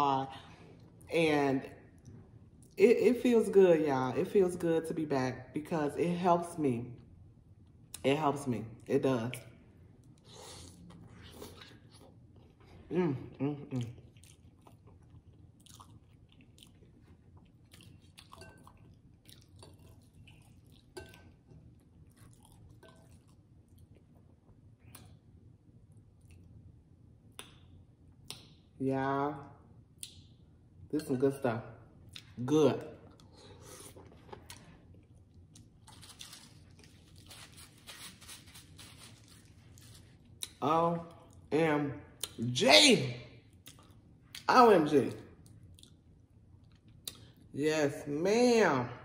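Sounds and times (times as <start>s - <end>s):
quiet chewing: 10.0s - 26.7s, 43.5s - 44.4s, 45.4s - 47.4s.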